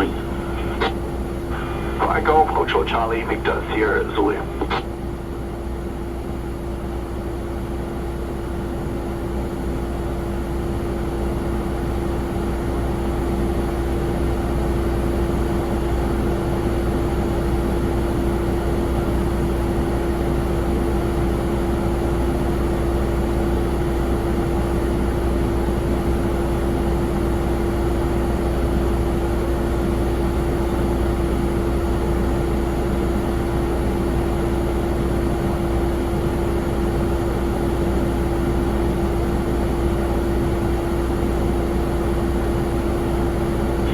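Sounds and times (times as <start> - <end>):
jet engines whining: 0.0 - 4.9.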